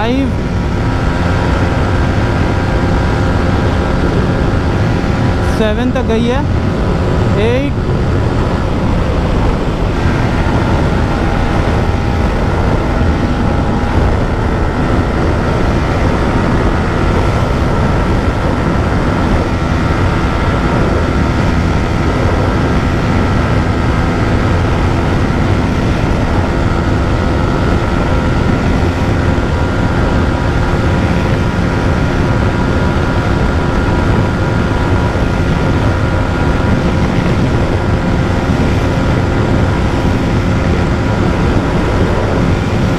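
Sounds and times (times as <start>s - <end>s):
motorcycle engine high-revving drone: 0.0s - 42.9s
wind rush over microphone: 0.0s - 42.9s.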